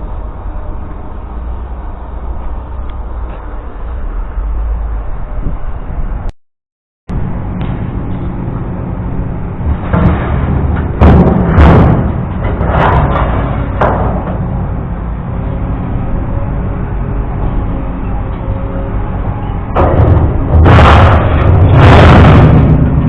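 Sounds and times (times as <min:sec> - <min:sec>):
engine running: 0:00.0 - 0:06.3, 0:07.1 - 0:23.0
heavy knocks: 0:09.8 - 0:14.5, 0:19.7 - 0:22.9.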